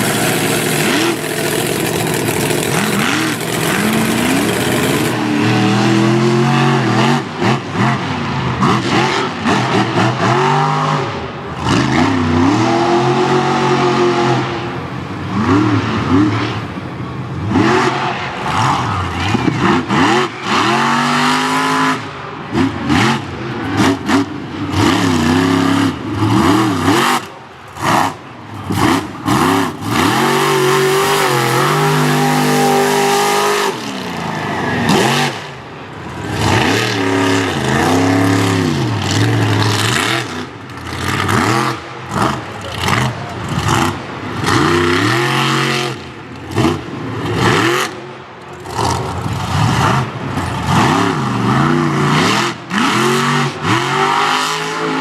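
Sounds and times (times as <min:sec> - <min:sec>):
truck engine revving hard: 0:00.0 - 0:55.0.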